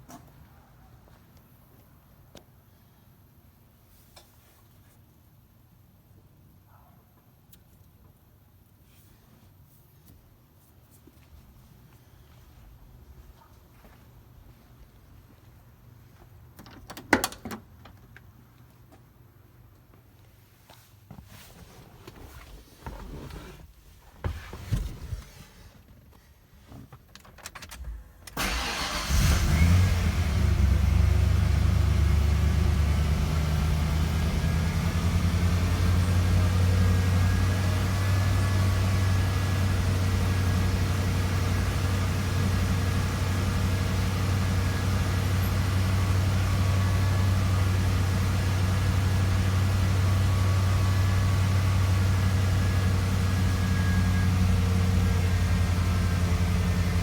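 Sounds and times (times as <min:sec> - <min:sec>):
engine starting and idling: 0:28.3 - 0:57.0.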